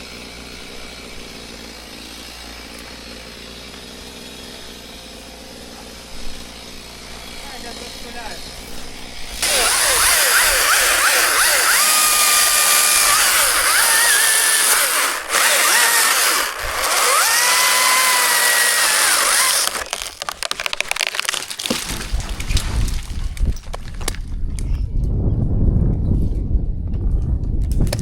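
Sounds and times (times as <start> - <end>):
chainsaw cutting wood: 0.0 - 24.2
wood cracks and knocks: 16.7 - 24.4.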